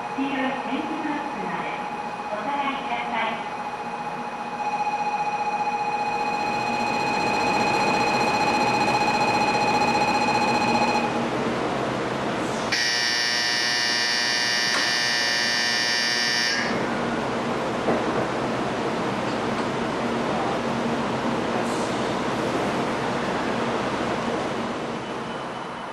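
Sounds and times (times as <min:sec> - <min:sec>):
electronic buzzer tone: 0:04.4 - 0:11.1, 0:12.7 - 0:16.8
louder brighter buzzer: 0:12.7 - 0:16.8.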